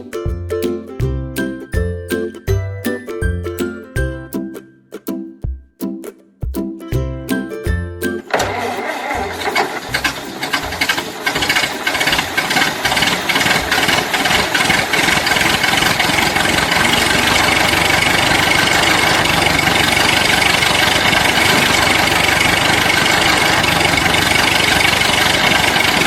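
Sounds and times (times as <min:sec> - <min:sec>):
engine running: 0:08.3 - 0:26.0.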